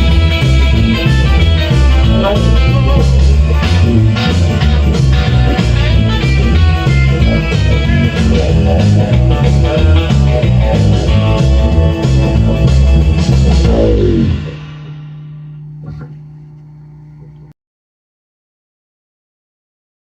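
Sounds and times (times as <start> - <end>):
rockabilly band playing live: 0.0 - 15.0
low steady tone: 14.1 - 17.6.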